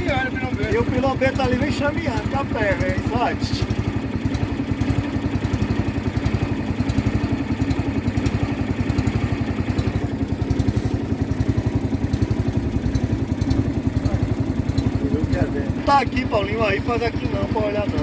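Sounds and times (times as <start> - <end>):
small boat engine running: 0.0 - 18.0.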